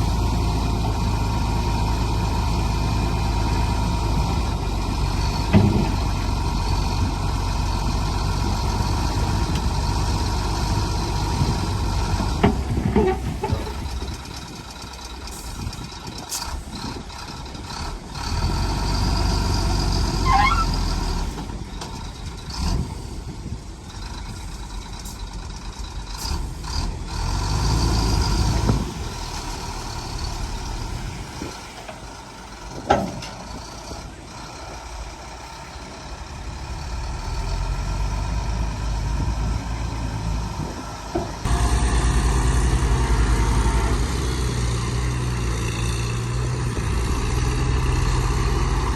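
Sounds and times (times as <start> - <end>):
heavy diesel machinery working: 0.0 - 48.9
brief squeals: 20.2 - 20.8.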